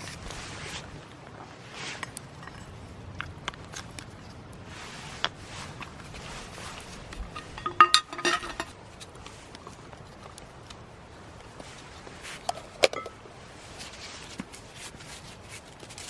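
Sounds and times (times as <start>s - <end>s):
utensils clinking against dish: 7.3s - 8.8s.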